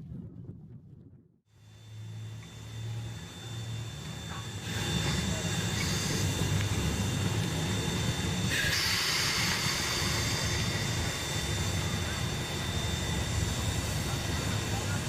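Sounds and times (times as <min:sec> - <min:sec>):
train rumbling: 0:01.6 - 0:15.0
steady hiss: 0:04.6 - 0:15.0.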